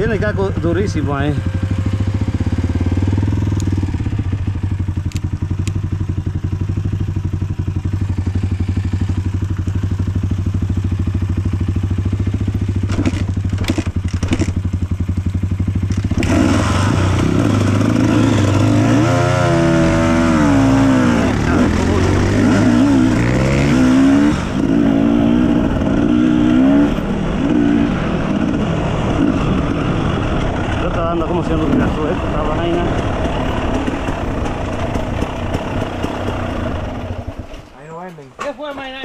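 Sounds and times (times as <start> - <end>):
dirt bike engine running: 0.0 - 37.8
sharp clattering knocks: 12.8 - 14.8, 33.0 - 39.0.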